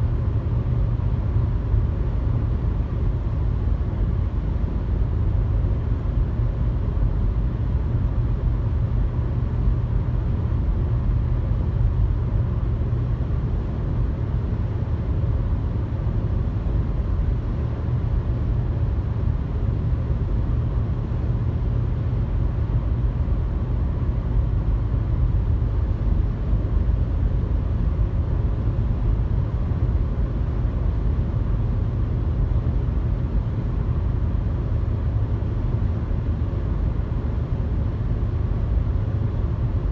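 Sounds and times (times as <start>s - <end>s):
car road noise and engine hum: 0.0s - 39.9s.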